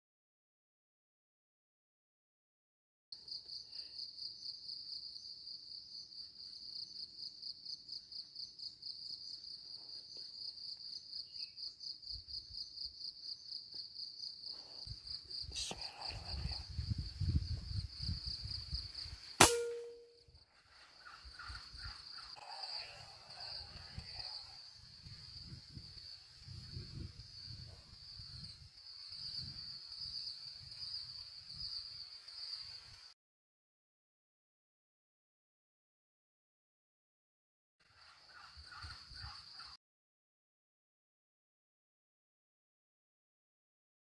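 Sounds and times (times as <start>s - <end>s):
air rifle shot: 19.4s - 20.0s
insects trilling: 21.8s - 32.8s.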